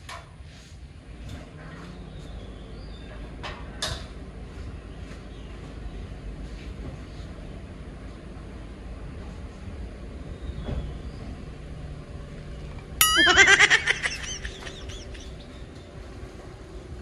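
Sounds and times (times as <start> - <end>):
bird calling loudly: 13.3 - 15.6.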